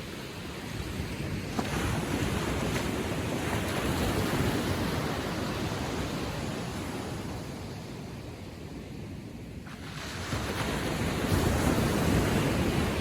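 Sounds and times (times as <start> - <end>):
waves lapping on sandy shore: 0.0 - 13.0.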